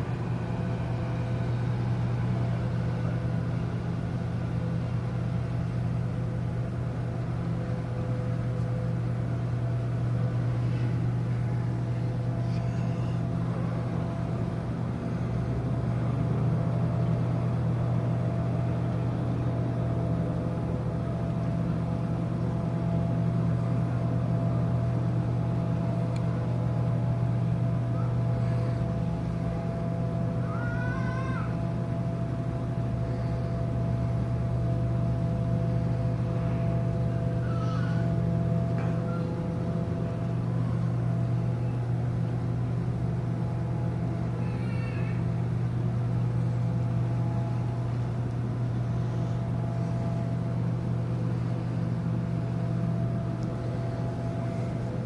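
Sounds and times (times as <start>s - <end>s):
ship machinery drone: 0.0s - 55.0s.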